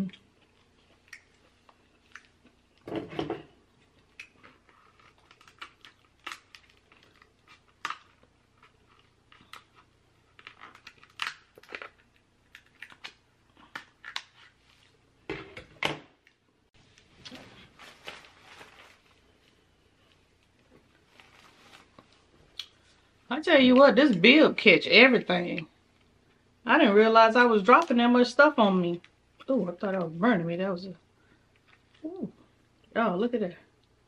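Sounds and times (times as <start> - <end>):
crab shell cracking: 4.0 - 14.4.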